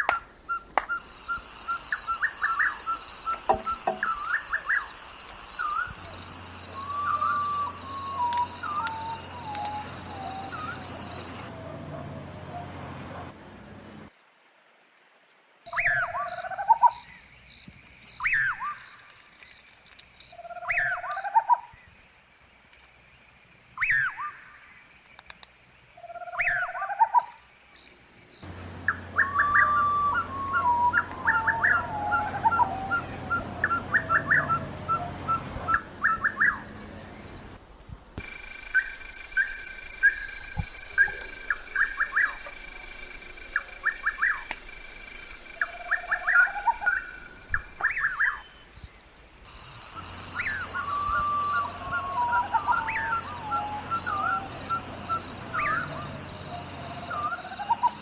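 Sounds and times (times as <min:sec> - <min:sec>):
wild birds calling: 0:00.0 - 0:14.1, 0:15.7 - 0:22.0, 0:25.9 - 0:37.6, 0:38.2 - 0:58.0
high insect drone: 0:01.0 - 0:11.6, 0:27.1 - 0:58.0.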